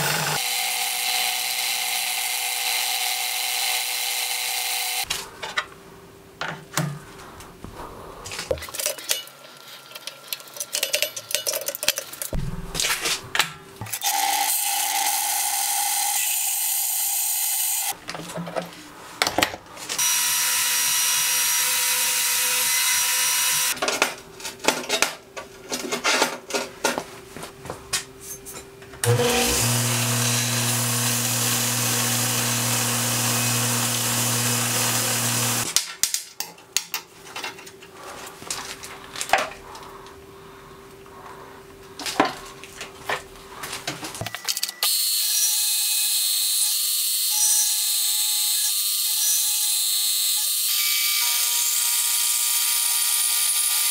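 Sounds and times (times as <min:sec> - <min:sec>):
belt grinder grinding steel: 0:00.0 - 0:05.1, 0:29.0 - 0:35.7
milling machine cutting steel: 0:29.0 - 0:35.7.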